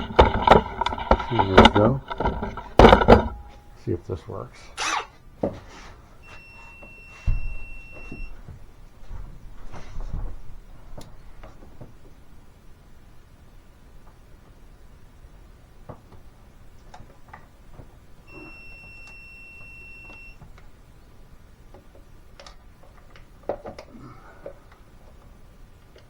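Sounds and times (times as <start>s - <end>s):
louder knocks: 0.0s - 3.6s
tools and plastic parts clicking: 0.0s - 3.6s.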